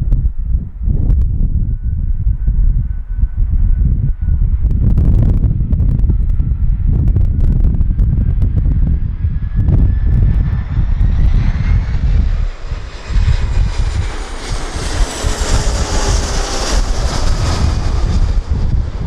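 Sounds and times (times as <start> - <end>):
jet airliner engine roar: 0.0 - 19.0
wind buffeting microphone: 0.0 - 19.0.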